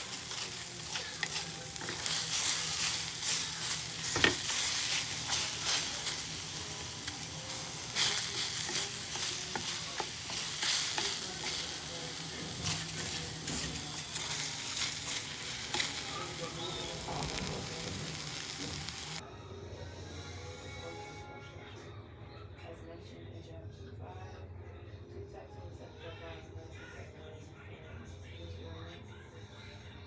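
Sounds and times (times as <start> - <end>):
food sizzling in a frying pan: 0.0 - 19.2
utensil clicking and scraping: 0.0 - 19.2.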